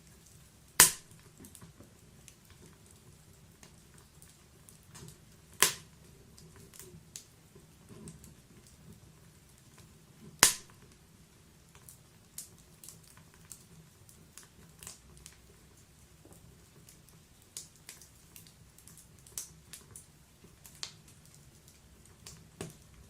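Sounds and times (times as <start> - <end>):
wood fire crackling: 0.0 - 23.0
loud sharp fire pop: 0.8 - 1.1, 5.6 - 5.9, 10.4 - 10.7.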